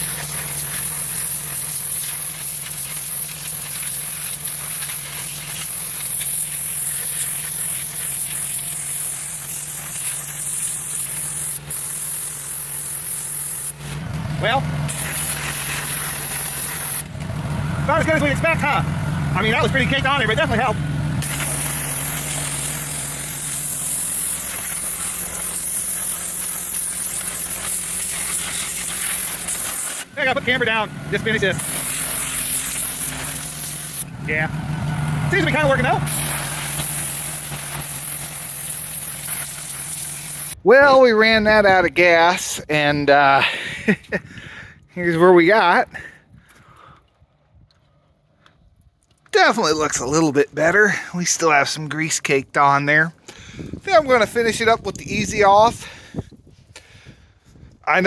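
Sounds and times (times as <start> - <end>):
pressure washer engine hum: 0.0 - 40.6
water spray hissing: 0.0 - 40.6.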